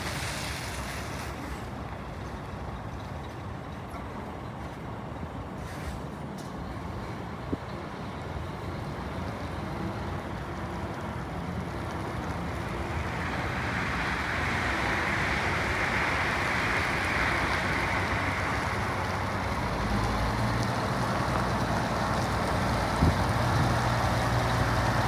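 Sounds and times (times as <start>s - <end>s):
truck diesel engine running: 9.6s - 25.0s
hiss: 13.0s - 19.5s.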